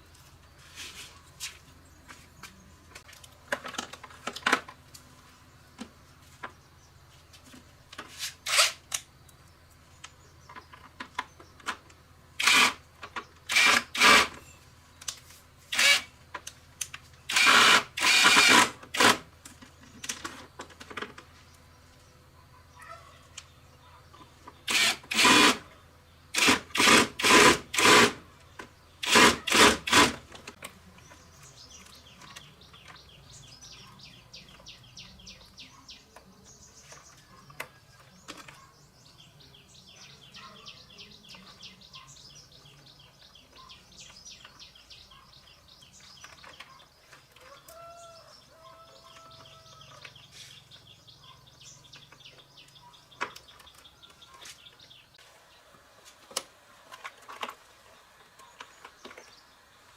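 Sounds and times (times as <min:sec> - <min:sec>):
faint rapid bird chirping: 0:31.0 - 0:55.7.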